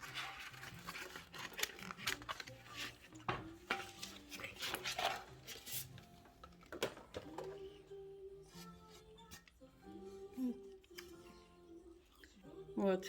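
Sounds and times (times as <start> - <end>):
packaging crinkling: 0.0 - 3.2, 3.8 - 6.0
quiet background music: 0.0 - 13.0.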